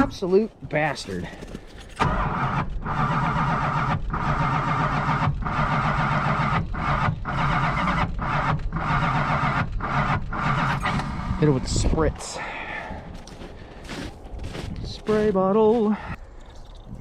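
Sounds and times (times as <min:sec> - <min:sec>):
starter motor cranking engine: 0:01.5 - 0:11.8.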